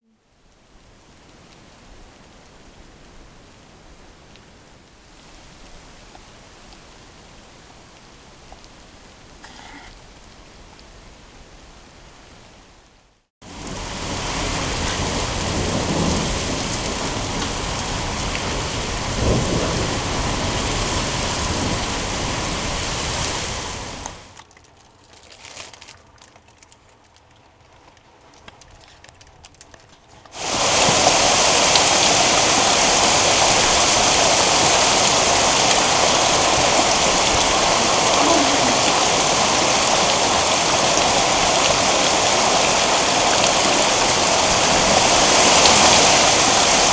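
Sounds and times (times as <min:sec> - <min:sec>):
heavy rain downpour: 0:00.0 - 0:24.4, 0:26.8 - 0:46.9
thunder rumbling: 0:13.6 - 0:24.2, 0:30.4 - 0:46.9.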